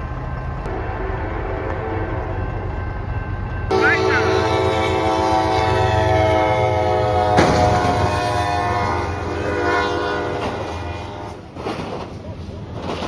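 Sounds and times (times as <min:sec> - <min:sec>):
train horn sounding a chord: 0:00.7 - 0:02.5, 0:03.7 - 0:11.4.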